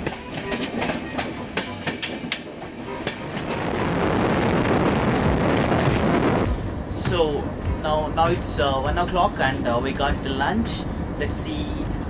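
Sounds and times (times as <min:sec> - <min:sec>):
train wheels clickety-clack: 0:00.0 - 0:03.6
passing train rushing: 0:00.0 - 0:12.0.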